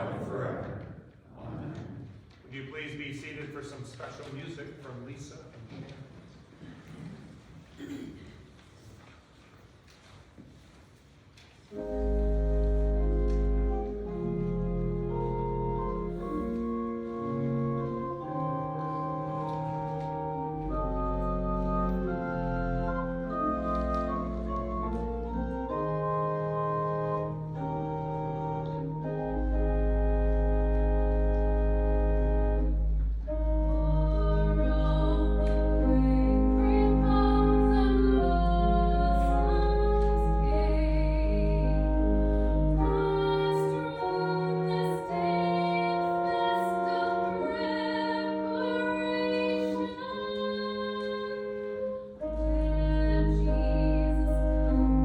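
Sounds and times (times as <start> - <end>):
church organ chords: 11.7 - 55.0
deep organ pedal bass note: 20.2 - 43.4.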